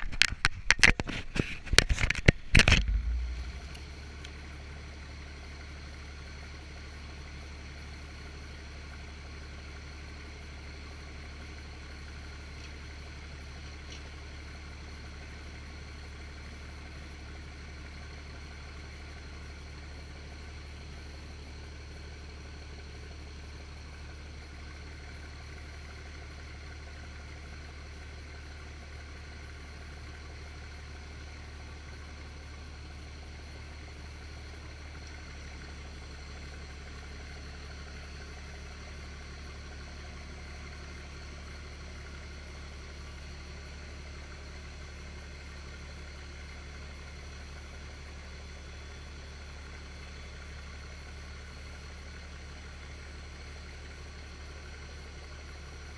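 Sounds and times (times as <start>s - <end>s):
truck engine droning: 0.0s - 19.8s, 31.4s - 55.9s.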